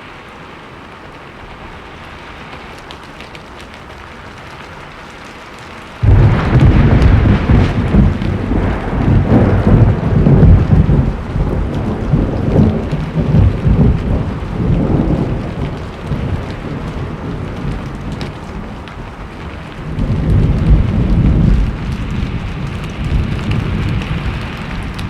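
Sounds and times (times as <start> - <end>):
heavy rain: 0.0 - 25.0
thunder rumbling: 6.0 - 25.0.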